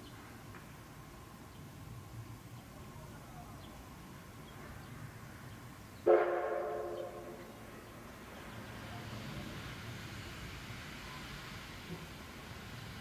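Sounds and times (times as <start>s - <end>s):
steam locomotive whistle blast: 6.0s - 7.4s.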